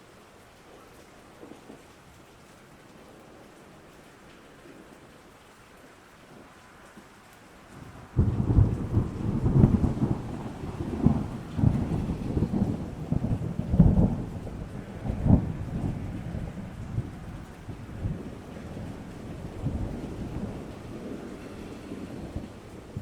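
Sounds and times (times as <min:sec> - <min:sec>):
steady rain: 0:00.0 - 0:23.0
thunder rumbling: 0:07.8 - 0:23.0.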